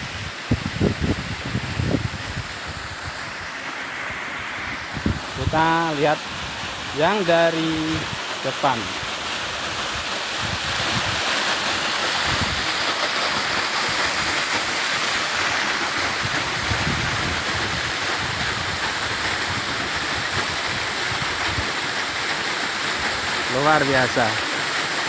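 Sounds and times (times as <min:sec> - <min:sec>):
waterfall rushing: 0:00.0 - 0:25.0
wind buffeting microphone: 0:00.1 - 0:03.1, 0:04.8 - 0:06.9, 0:12.2 - 0:12.8, 0:16.0 - 0:21.7.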